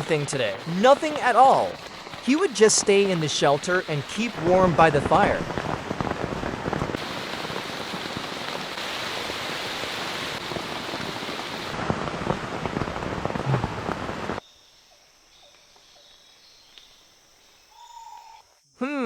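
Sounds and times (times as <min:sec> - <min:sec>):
heavy rain pouring: 0:00.0 - 0:14.4
faint forest calls: 0:14.4 - 0:19.0.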